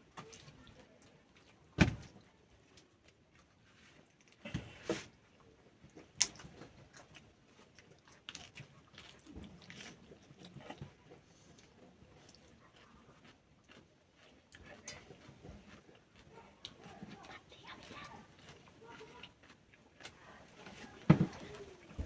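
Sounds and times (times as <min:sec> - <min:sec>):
knocks and clicks of objects handled: 0:21.0 - 0:22.0.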